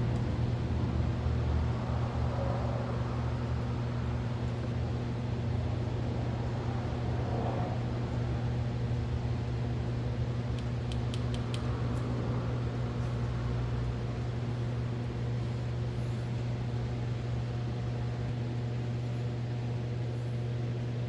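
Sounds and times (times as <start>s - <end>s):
quick light clicks: 10.5s - 12.1s.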